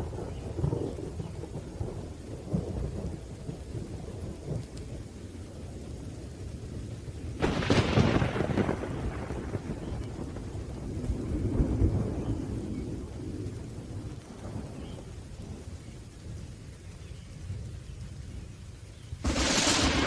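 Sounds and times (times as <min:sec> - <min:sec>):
rolling thunder rumble: 0:00.0 - 0:18.6, 0:19.2 - 0:20.0
steady rain: 0:00.0 - 0:20.0
sharp thunder crack: 0:07.4 - 0:10.5, 0:19.2 - 0:20.0.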